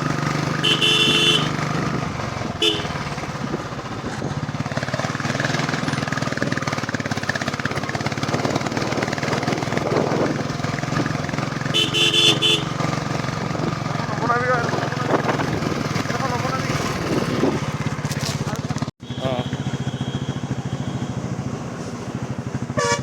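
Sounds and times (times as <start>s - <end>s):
motorcycle engine running: 0.0s - 23.0s
short horn beeps: 0.6s - 1.6s, 2.6s - 3.0s, 11.7s - 12.8s, 19.0s - 21.2s, 22.8s - 23.0s.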